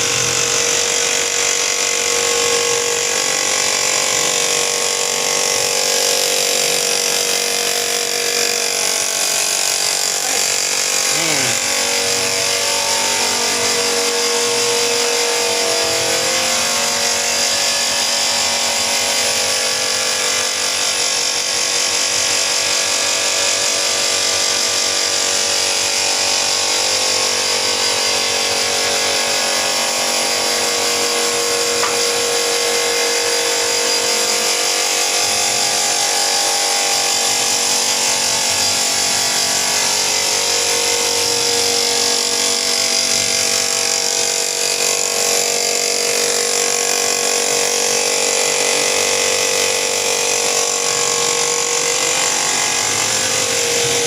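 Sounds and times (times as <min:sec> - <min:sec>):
power tool whining: 0:00.0 - 0:54.0.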